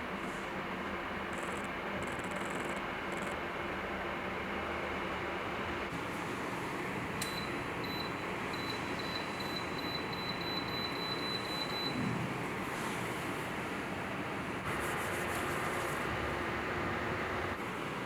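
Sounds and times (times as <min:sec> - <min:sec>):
heater fan rushing: 0:04.0 - 0:18.0.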